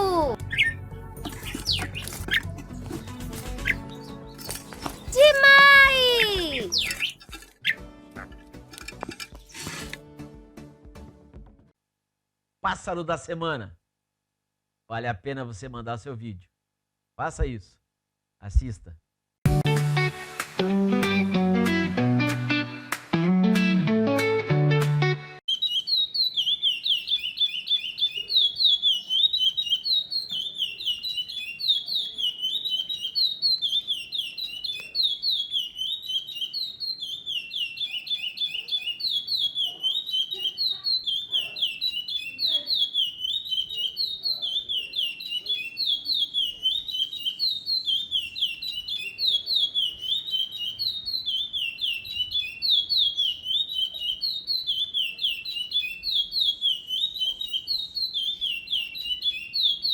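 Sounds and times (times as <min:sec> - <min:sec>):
songbird singing: 0:00.0 - 0:08.3, 0:25.5 - 0:59.9.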